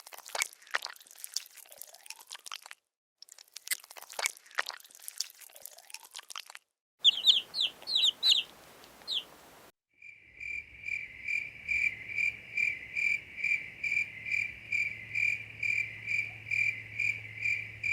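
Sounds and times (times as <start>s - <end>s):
cricket chirping: 7.0s - 9.3s, 10.0s - 17.9s
high falling peeps: 7.0s - 9.6s.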